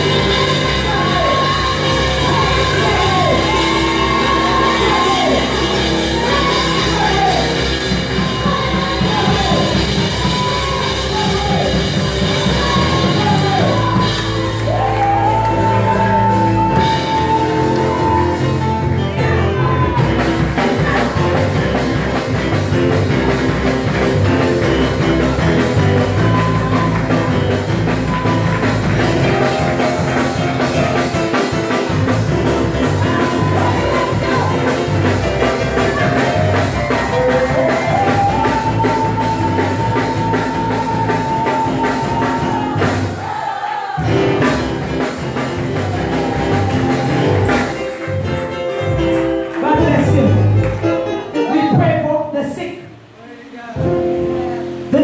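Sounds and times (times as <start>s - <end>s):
voices singing and shouting: 0.0s - 18.6s, 32.4s - 44.6s
live praise band music: 0.0s - 55.0s.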